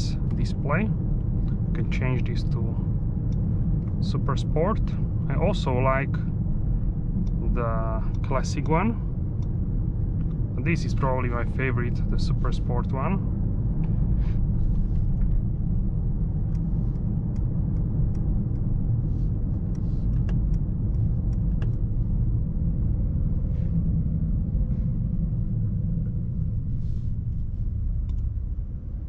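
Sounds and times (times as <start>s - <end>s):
car engine cruising: 0.0s - 29.0s
road noise: 0.0s - 29.0s.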